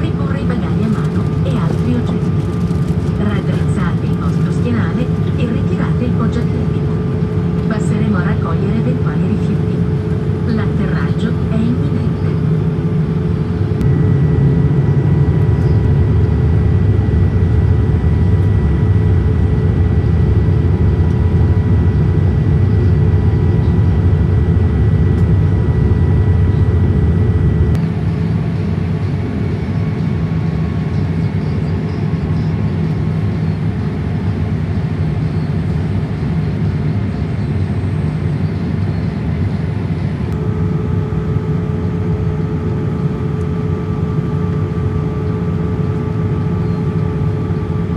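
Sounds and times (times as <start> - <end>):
airliner cabin engine rumble: 0.0 - 47.9
faint steady whining tones: 0.0 - 47.9.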